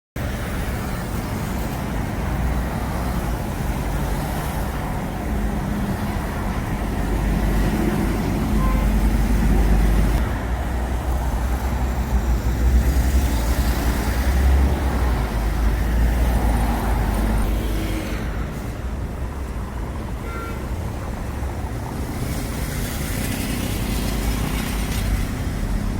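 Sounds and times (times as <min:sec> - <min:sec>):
traffic rumble: 0:00.2 - 0:25.9.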